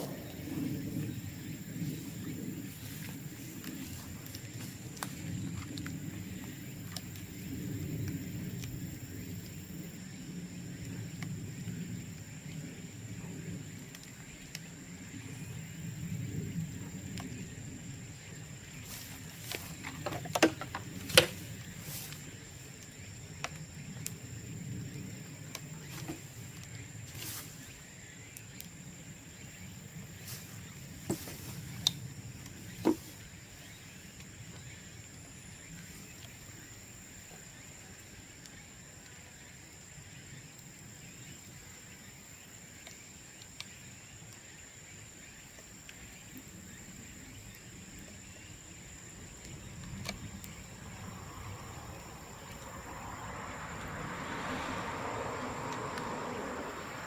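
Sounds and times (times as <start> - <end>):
bamboo popping in fire: 0.0 - 10.0, 13.1 - 39.2.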